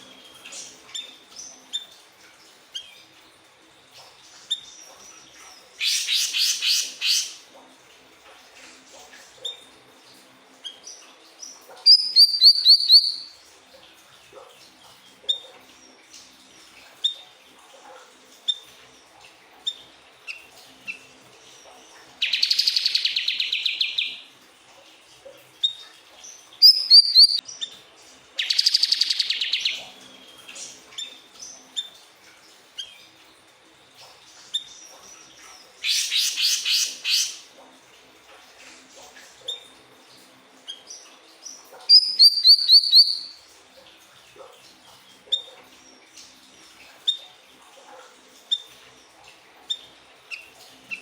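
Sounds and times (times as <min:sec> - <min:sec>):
bird rapid trills: 0:05.8 - 0:07.4, 0:26.6 - 0:27.4, 0:34.7 - 0:37.4
bird chirps: 0:11.9 - 0:13.3, 0:26.6 - 0:27.7, 0:41.9 - 0:43.4.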